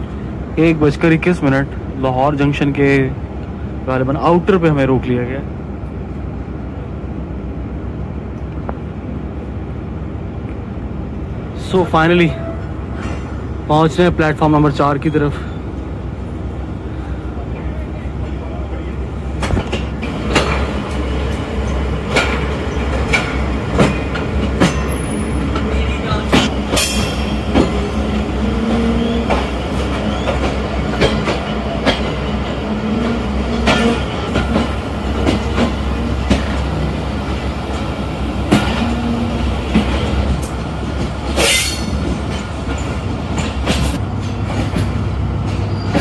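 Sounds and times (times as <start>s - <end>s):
train low rumble: 0.0s - 46.0s
train wheels clacking over joints: 19.4s - 46.0s
wheel squeals: 28.6s - 30.6s.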